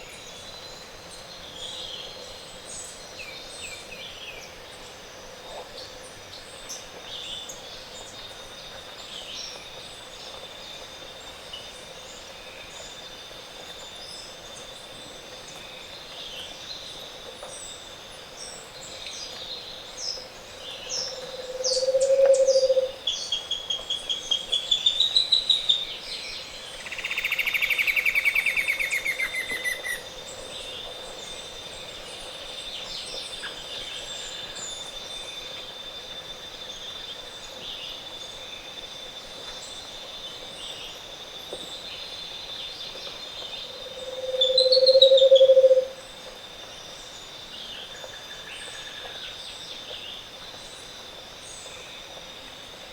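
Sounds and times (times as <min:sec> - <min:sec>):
low hoot: 0:21.4 - 0:22.9, 0:44.0 - 0:46.0
bird trill: 0:44.2 - 0:45.9.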